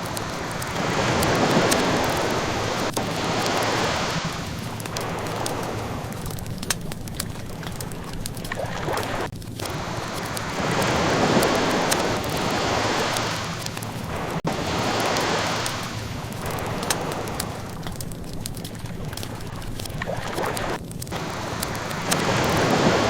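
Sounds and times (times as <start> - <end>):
ocean waves washing: 0.0 - 23.0
wood fire crackling: 0.0 - 23.0.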